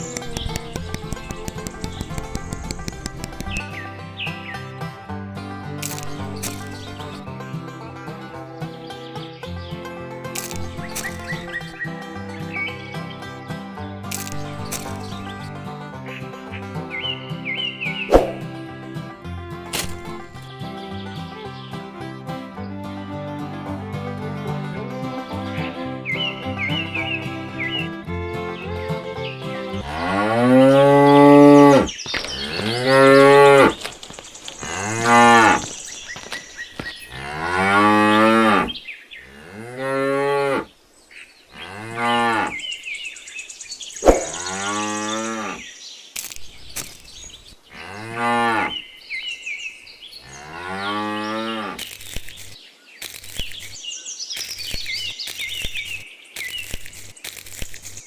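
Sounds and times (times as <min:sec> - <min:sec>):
sharp clicks: 0:00.0 - 0:03.8, 0:05.8 - 0:06.9, 0:10.3 - 0:11.6, 0:14.1 - 0:15.3, 0:46.2 - 0:47.2, 0:51.8 - 0:58.0
birds chirping faintly: 0:00.0 - 0:05.1, 0:05.8 - 0:22.8, 0:25.0 - 0:58.0
cattle mooing: 0:29.7 - 0:33.8, 0:34.6 - 0:35.7, 0:37.1 - 0:40.7, 0:41.6 - 0:42.6, 0:44.2 - 0:45.6, 0:47.8 - 0:48.8.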